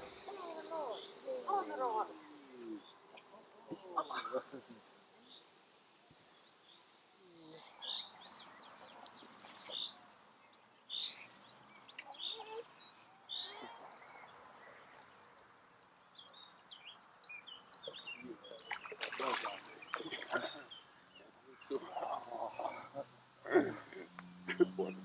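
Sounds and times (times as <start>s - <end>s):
birds chirping: 0.0s - 25.0s
faint outdoor background: 0.0s - 25.0s.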